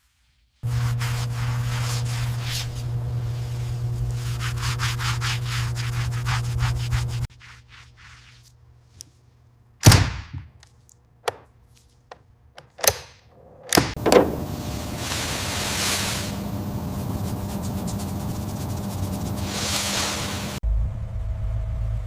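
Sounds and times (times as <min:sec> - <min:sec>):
steady noisy rumble with low hum: 0:00.6 - 0:07.3, 0:14.0 - 0:22.0
sharp thuds: 0:09.8 - 0:10.6.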